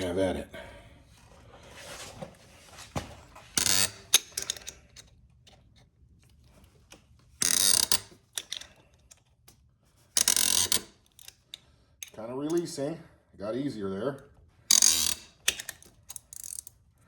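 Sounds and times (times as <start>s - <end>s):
ratcheting wrench clicking: 3.6s - 5.1s, 7.4s - 9.2s, 10.2s - 12.7s, 14.7s - 16.8s.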